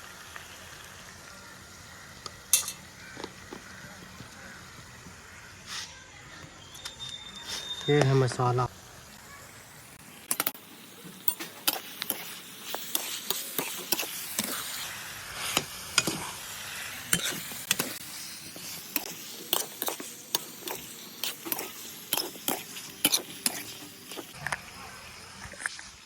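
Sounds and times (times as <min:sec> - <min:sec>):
curry sizzling in a pot: 0:00.0 - 0:26.0
spoon scraping a pot: 0:11.2 - 0:16.4, 0:17.1 - 0:24.4.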